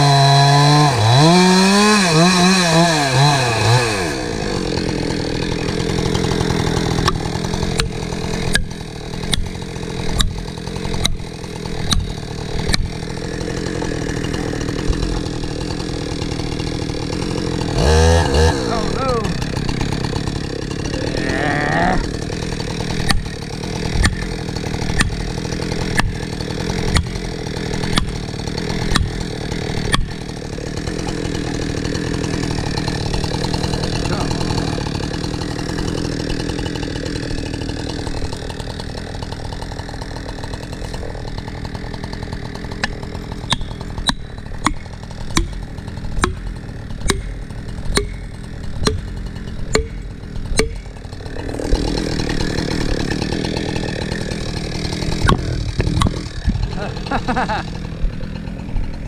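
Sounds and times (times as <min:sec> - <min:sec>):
chainsaw running: 0:00.0 - 0:59.0
wedge struck with sharp blows: 0:07.0 - 0:09.5, 0:10.1 - 0:10.4, 0:11.8 - 0:13.0, 0:23.0 - 0:24.3, 0:24.9 - 0:25.2, 0:25.9 - 0:26.3, 0:26.9 - 0:27.2, 0:27.8 - 0:28.2, 0:28.9 - 0:29.2, 0:29.9 - 0:30.2, 0:42.8 - 0:51.0, 0:55.2 - 0:56.7.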